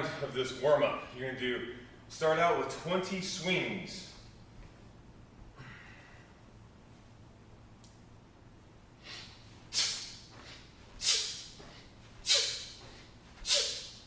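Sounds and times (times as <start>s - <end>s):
sharp hissing exhalations: 9.0s - 14.0s.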